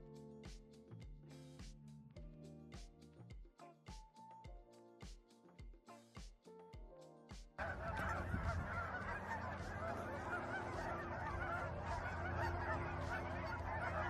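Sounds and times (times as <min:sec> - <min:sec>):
background music: 0:00.0 - 0:14.0
geese honking: 0:07.6 - 0:14.0.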